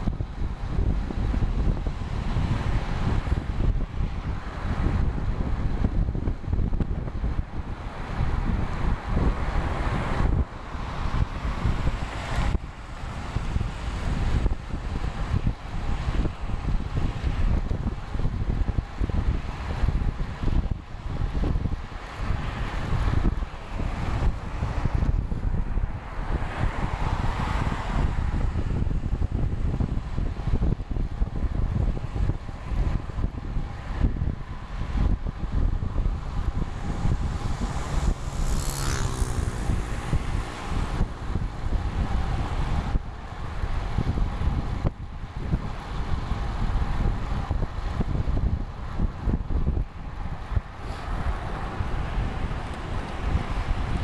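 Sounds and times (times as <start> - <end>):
wind buffeting microphone: 0.0 - 54.0
motor vehicle passing: 36.2 - 43.8, 50.2 - 54.0.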